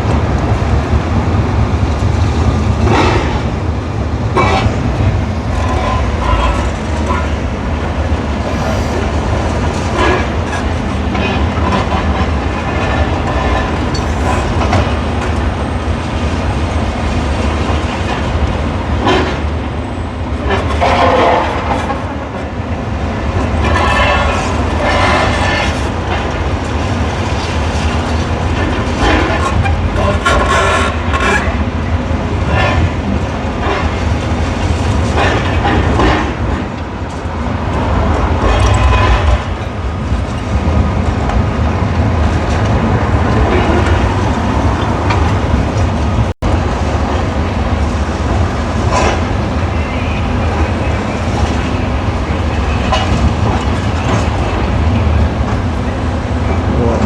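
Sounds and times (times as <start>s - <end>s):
demolition machinery rumble: 31.7s - 57.0s.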